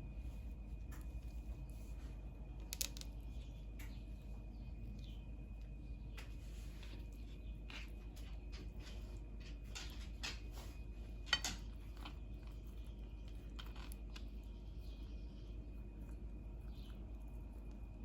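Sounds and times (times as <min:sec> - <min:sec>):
steady low hum: 0:00.0 - 0:18.0
hands and utensils scraping and tapping: 0:11.3 - 0:12.2.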